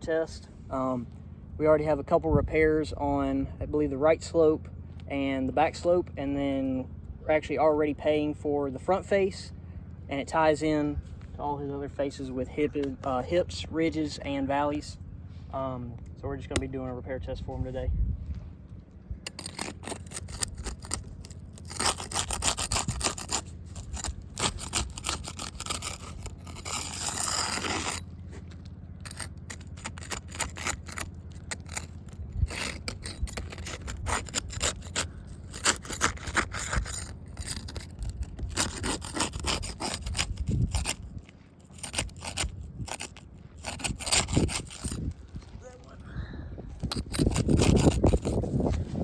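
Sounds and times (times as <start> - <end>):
steady low hum: 0.0 - 49.0
roof shingles scraping: 19.2 - 45.2.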